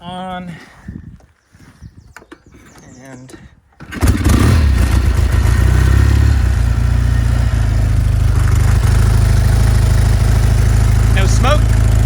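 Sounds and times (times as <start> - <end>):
motorcycle engine running: 3.9 - 12.0.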